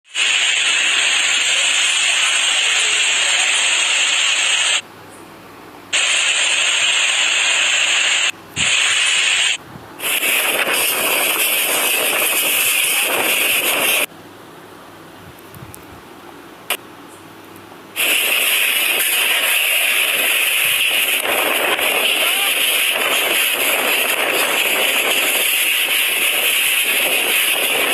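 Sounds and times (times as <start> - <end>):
wind and driven rain: 0.1 - 4.8, 5.9 - 14.1, 17.9 - 27.9.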